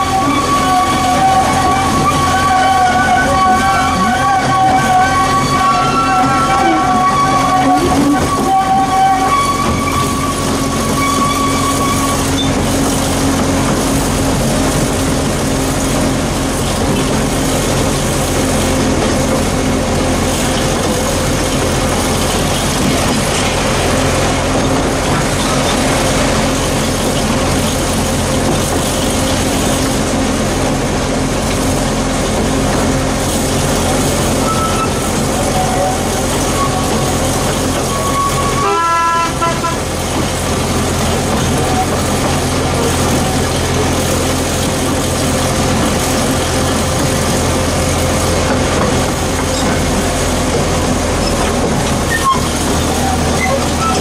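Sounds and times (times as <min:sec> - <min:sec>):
train horn toot: 0:00.0 - 0:12.3, 0:34.3 - 0:37.1, 0:37.8 - 0:40.1
locomotive drone: 0:00.0 - 0:54.0
wheels on rails: 0:00.0 - 0:54.0.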